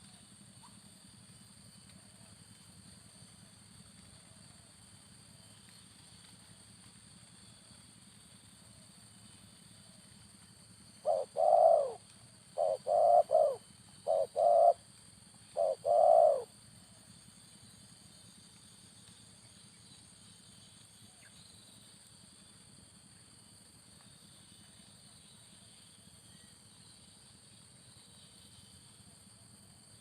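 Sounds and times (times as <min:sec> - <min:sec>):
dove cooing: 0:11.0 - 0:12.0, 0:12.6 - 0:14.8, 0:15.6 - 0:16.5.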